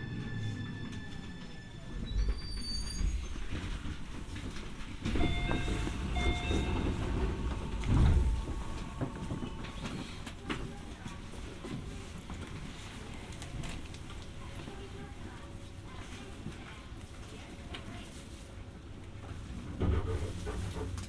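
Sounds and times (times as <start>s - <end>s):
wheel squeal: 0.0s - 3.8s
electric train running rumble: 0.0s - 15.2s
wheels clicking over rails: 2.1s - 14.4s.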